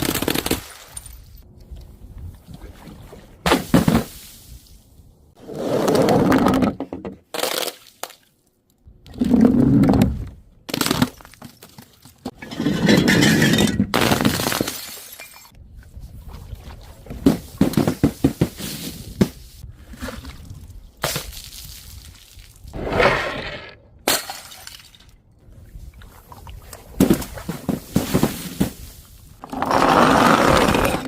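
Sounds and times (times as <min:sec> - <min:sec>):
glass bottles shattering: 0:12.4 - 0:15.6.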